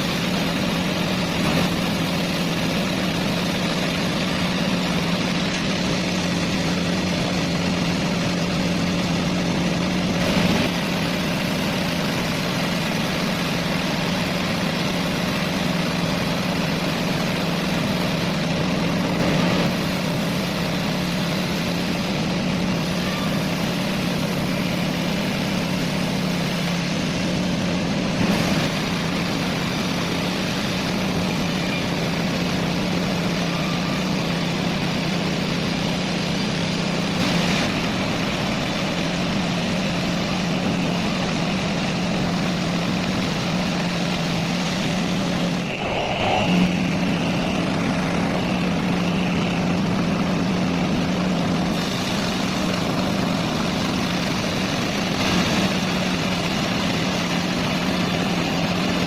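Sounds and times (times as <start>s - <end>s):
faint high whine: 0.0s - 59.0s
heavy engine humming: 0.0s - 59.0s.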